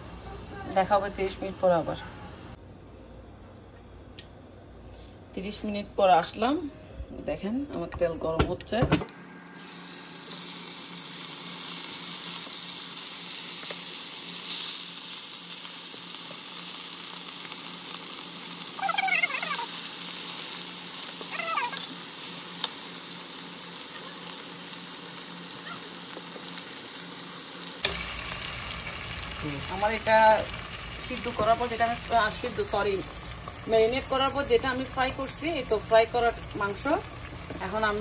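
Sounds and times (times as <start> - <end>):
chicken sizzling in hot oil: 9.2 - 38.0
brief high-pitched cries: 18.7 - 19.8, 21.2 - 22.0.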